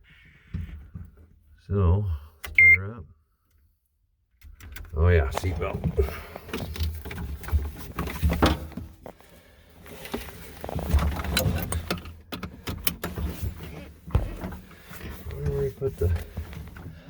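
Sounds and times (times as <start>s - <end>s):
seat belt webbing rustling: 6.6s - 12.1s, 12.7s - 17.0s.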